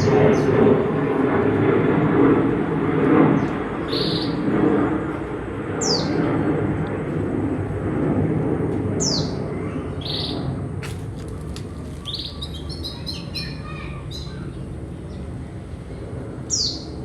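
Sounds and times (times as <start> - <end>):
cage birds chirping: 9.0 - 10.5, 11.1 - 15.6.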